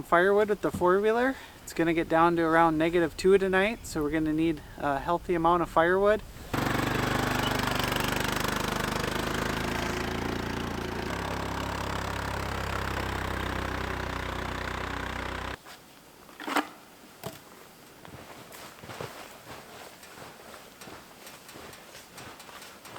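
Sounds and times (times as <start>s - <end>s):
atv engine running: 5.6s - 15.6s.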